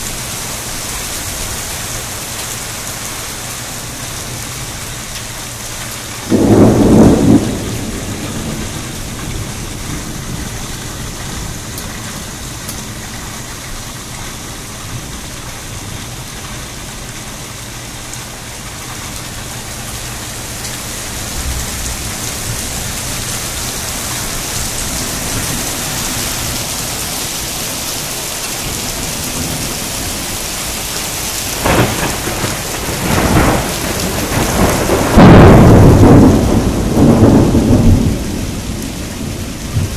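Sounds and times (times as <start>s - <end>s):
heavy rain: 0.0s - 39.9s
thunder clap: 6.3s - 11.8s, 31.6s - 39.9s.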